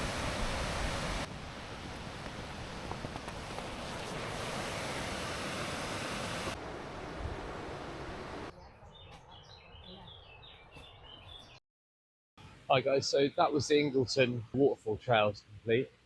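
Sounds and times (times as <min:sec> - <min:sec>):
waterfall rushing: 0:00.0 - 0:08.5
birds chirping: 0:08.5 - 0:11.6.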